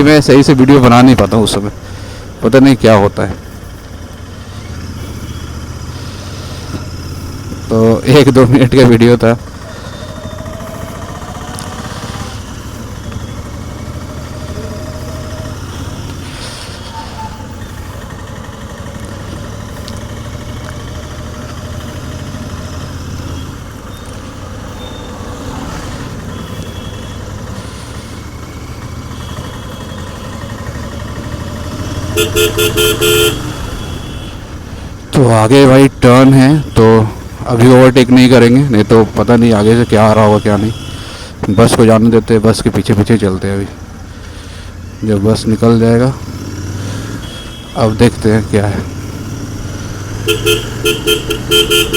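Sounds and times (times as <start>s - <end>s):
motorcycle engine running: 0.0s - 51.9s
vehicle horn beeping: 26.2s - 27.9s, 28.9s - 34.6s, 36.4s - 37.0s, 39.4s - 41.2s, 47.0s - 48.2s, 49.9s - 51.9s.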